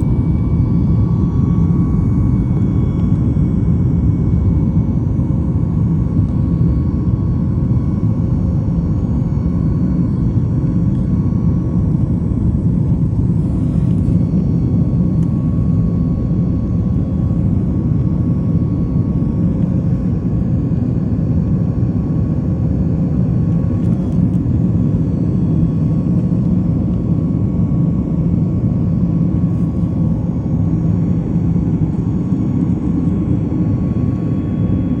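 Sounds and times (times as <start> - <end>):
faint constant hum: 0.0 - 35.0
jet engine and airflow rumble: 0.0 - 35.0.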